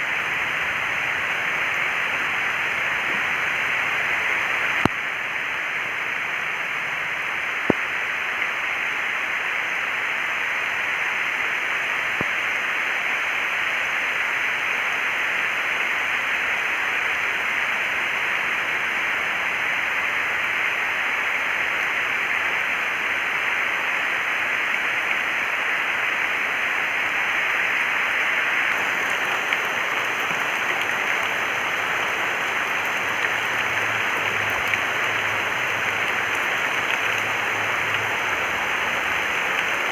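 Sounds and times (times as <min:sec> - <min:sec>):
faint clicks: 0:28.7 - 0:38.2.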